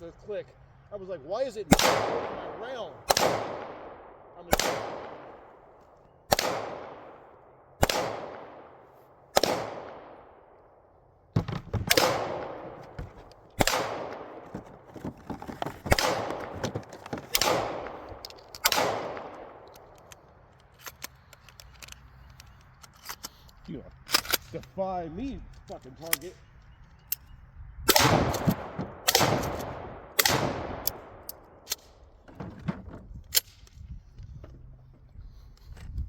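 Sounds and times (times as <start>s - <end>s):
echoing gunshots: 1.7s - 5.6s, 6.3s - 10.6s, 11.8s - 12.9s, 13.6s - 14.5s, 15.9s - 16.5s, 17.3s - 19.6s, 27.9s - 31.2s.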